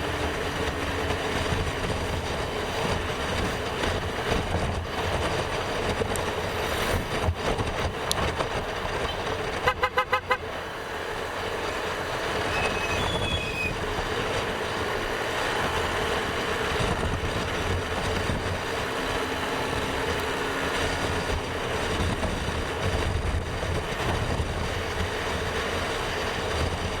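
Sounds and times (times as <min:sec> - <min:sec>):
motorcycle engine and wind noise: 0:00.0 - 0:27.0
horn tooting: 0:09.0 - 0:10.6, 0:12.3 - 0:13.9.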